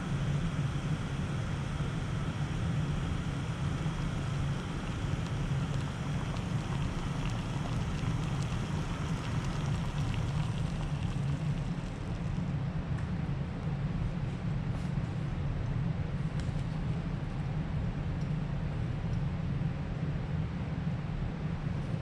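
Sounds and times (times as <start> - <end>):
gas stove burning: 0.0 - 12.4
faint crackling ticks: 3.0 - 12.4.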